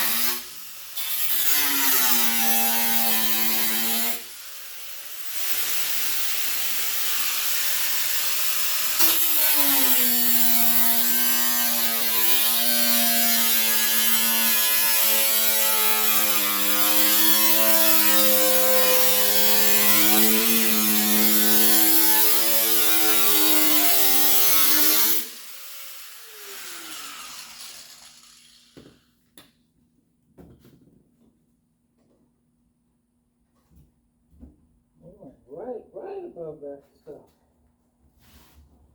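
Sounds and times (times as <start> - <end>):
power grinder whining on metal: 0.0 - 4.4, 5.4 - 29.0.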